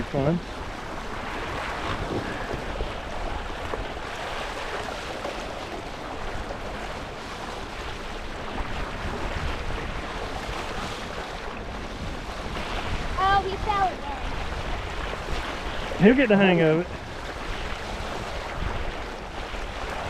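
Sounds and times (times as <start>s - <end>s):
water rushing and splashing: 0.0s - 20.0s
wind buffeting microphone: 0.0s - 20.0s.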